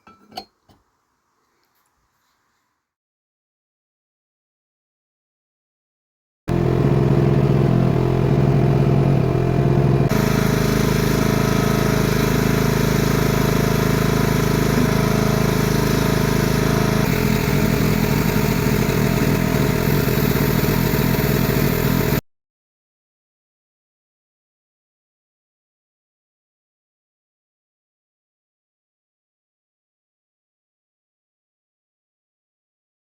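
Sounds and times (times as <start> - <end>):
mini excavator engine running: 6.5 - 22.2.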